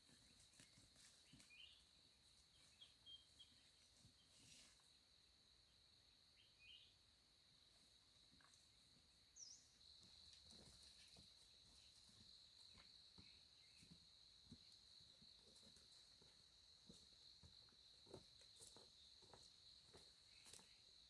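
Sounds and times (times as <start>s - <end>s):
bird chirps: 0.2s - 1.9s, 2.5s - 4.4s, 6.4s - 7.0s, 9.3s - 9.8s.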